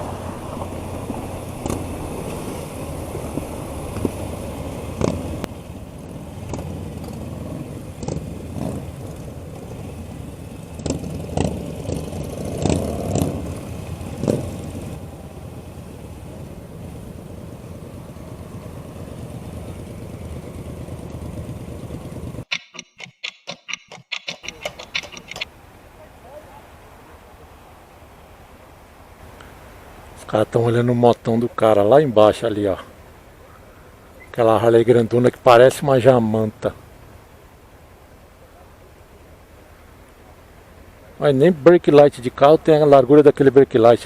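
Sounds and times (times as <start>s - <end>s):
motorcycle engine running: 0.0s - 25.5s
road and wind rush: 0.0s - 44.0s
sharp knocks: 22.5s - 25.5s.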